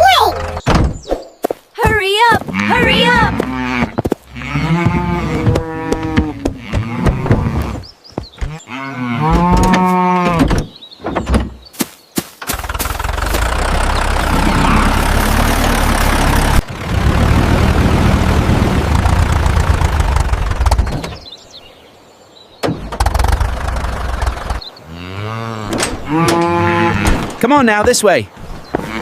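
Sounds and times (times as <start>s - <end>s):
cow mooing: 2.5s - 7.8s, 8.6s - 10.5s, 14.2s - 15.1s, 24.8s - 27.2s, 28.8s - 29.0s
tractor engine running: 12.2s - 21.3s, 22.7s - 24.7s.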